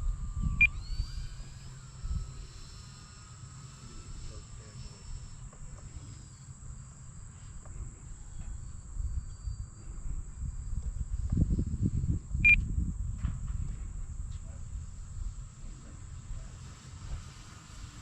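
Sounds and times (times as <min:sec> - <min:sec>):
wind buffeting microphone: 0:00.0 - 0:03.2, 0:07.7 - 0:18.0.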